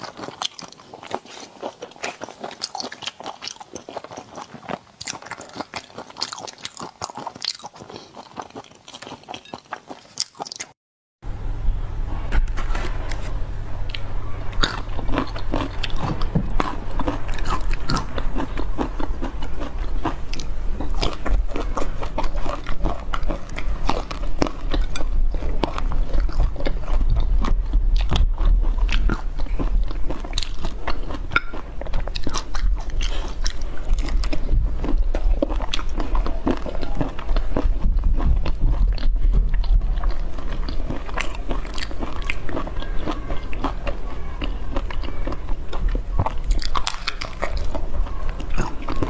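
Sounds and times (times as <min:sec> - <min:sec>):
crunchy chewing: 0:00.0 - 0:10.8, 0:12.3 - 0:49.0
steady low hum: 0:11.2 - 0:49.0.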